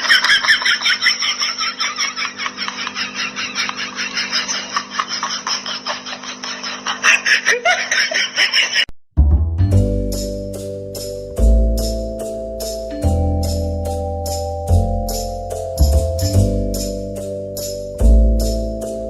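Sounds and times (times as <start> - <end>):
hard laughter in quick bursts: 0.0 - 8.9.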